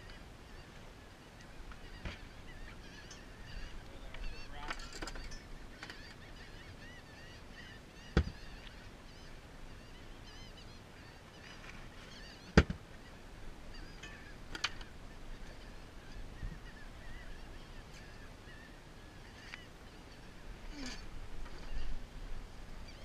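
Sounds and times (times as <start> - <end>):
seabirds calling: 0.0 - 23.0
sharp knocks: 8.2 - 8.4.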